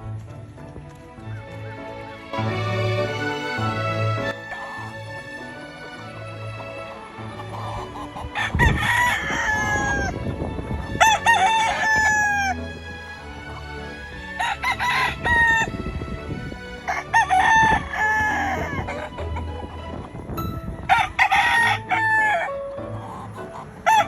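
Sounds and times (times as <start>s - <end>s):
roosters crowing: 7.4s - 10.2s, 11.0s - 12.6s, 14.4s - 15.7s, 16.9s - 19.6s, 20.9s - 22.5s.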